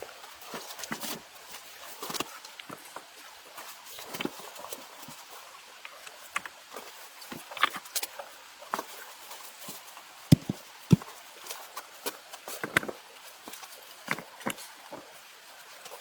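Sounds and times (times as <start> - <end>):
knocks and clicks from handwork: 10.3 - 11.0
loud thuds: 10.3 - 11.0.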